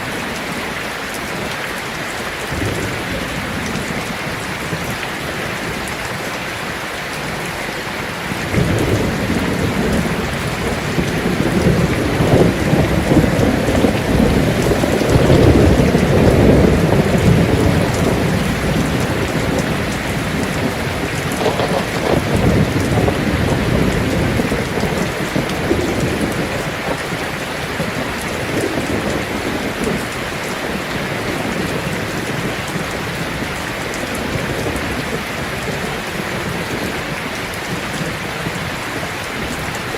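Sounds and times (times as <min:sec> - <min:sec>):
rain drumming on a tin roof: 0:00.0 - 0:39.9
thunder rolling: 0:02.5 - 0:06.2, 0:08.3 - 0:33.5.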